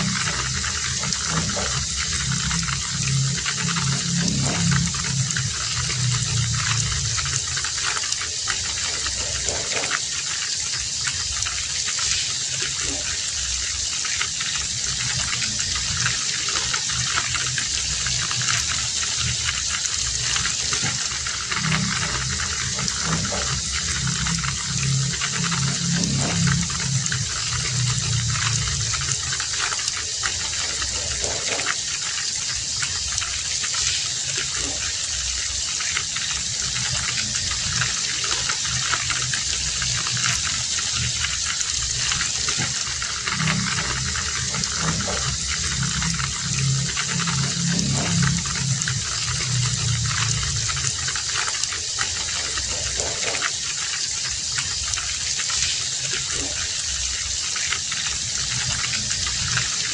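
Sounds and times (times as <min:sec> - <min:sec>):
low rumble: 0:00.0 - 0:09.7, 0:14.7 - 0:31.4, 0:36.6 - 0:53.3
heavy rain falling: 0:00.0 - 0:59.9.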